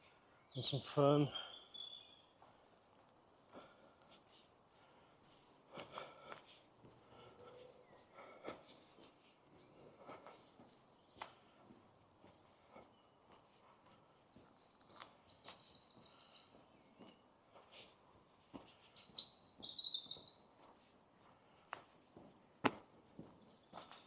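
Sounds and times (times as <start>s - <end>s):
songbird trilling: 0.0s - 2.3s, 14.5s - 17.0s, 18.6s - 20.6s.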